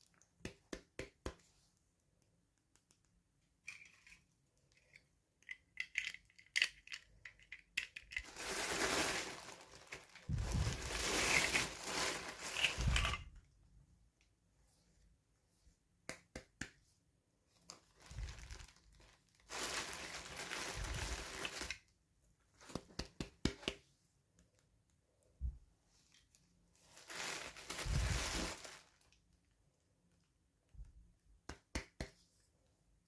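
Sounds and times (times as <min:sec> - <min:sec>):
packaging crinkling and tearing: 0:08.1 - 0:13.2, 0:17.7 - 0:21.8, 0:26.9 - 0:29.2.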